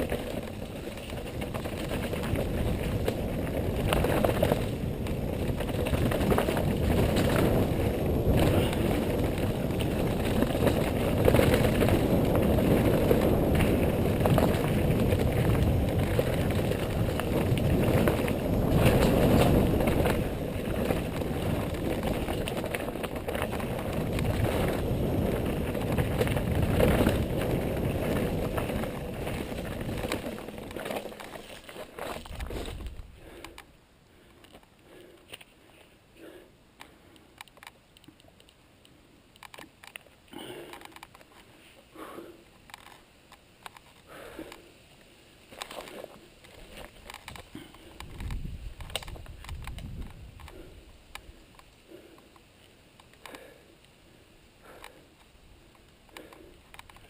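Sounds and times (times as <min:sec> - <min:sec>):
wind buffeting microphone: 0:00.0 - 0:31.1, 0:47.1 - 0:52.0
tyre rumble on dirt: 0:00.0 - 0:33.4, 0:45.5 - 0:50.8
bike rattling and clicking: 0:00.0 - 0:38.6, 0:39.3 - 0:44.7, 0:45.4 - 0:53.8, 0:54.6 - 0:57.0.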